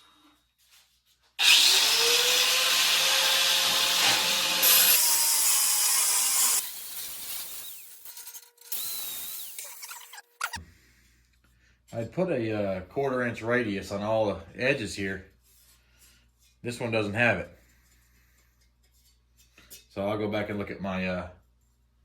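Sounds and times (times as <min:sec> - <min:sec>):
angle grinder grinding steel: 0:01.4 - 0:10.6.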